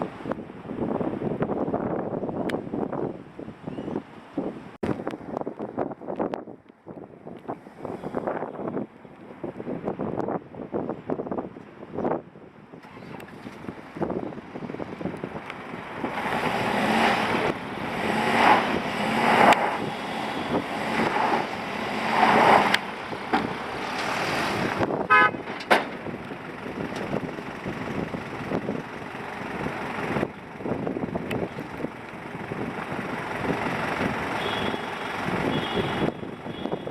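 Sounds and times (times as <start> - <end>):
truck engines revving: 12.7 - 36.9
short horn toot: 25.1 - 25.5, 34.4 - 36.9.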